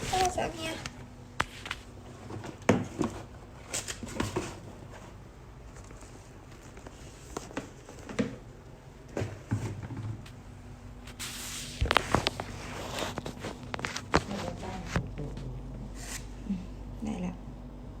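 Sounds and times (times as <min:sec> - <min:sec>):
steady low hum: 0:00.0 - 0:18.0
things being handled: 0:11.0 - 0:16.2.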